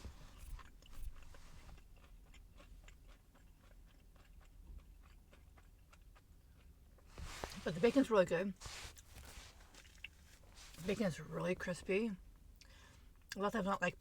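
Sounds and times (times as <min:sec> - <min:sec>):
chewing crunches: 0:00.0 - 0:07.6, 0:08.7 - 0:10.9.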